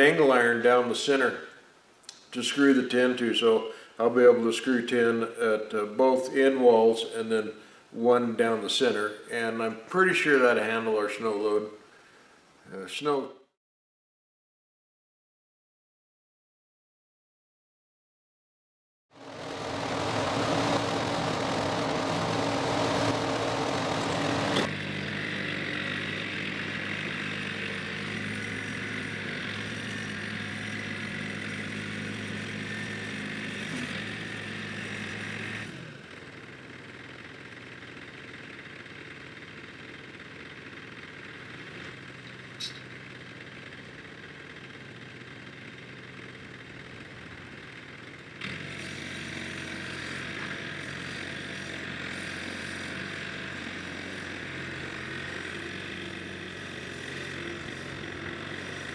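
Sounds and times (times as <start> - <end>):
machine motor running: 19.2 - 24.7
short click: 42.6 - 42.8.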